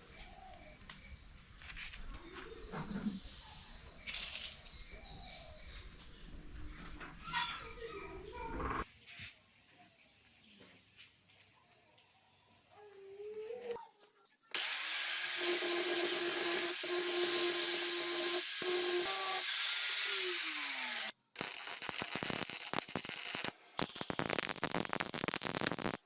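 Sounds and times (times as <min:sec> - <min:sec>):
power tool grinding: 0:14.6 - 0:24.3.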